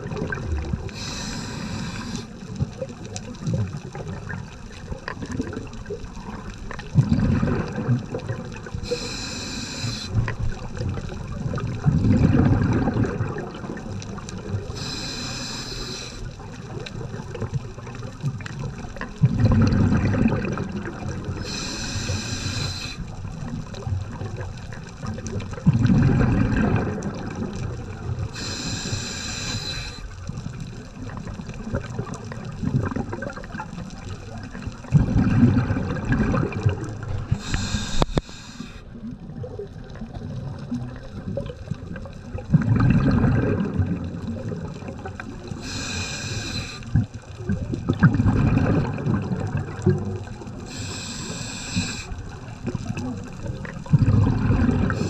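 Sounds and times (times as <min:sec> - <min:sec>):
bubbling exhale underwater: 0:00.0 - 0:55.0
hissing regulator inhale: 0:00.9 - 0:02.4, 0:08.8 - 0:10.3, 0:14.7 - 0:16.4, 0:21.4 - 0:23.2, 0:28.3 - 0:30.2, 0:37.3 - 0:38.9, 0:45.5 - 0:46.9, 0:50.6 - 0:52.3.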